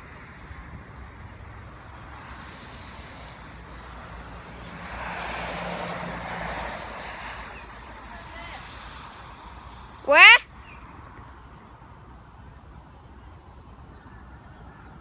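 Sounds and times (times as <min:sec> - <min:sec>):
vehicle passing: 0:02.1 - 0:10.4.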